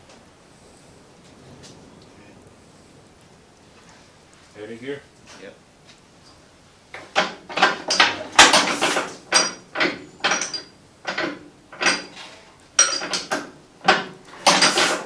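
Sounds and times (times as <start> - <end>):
metallic clanks of starting handle: 7.0 - 15.0.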